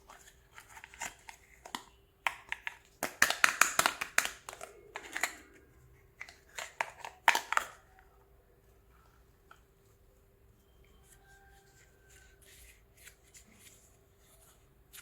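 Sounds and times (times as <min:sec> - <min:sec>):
plastic toy pieces clicking: 0:02.3 - 0:05.5.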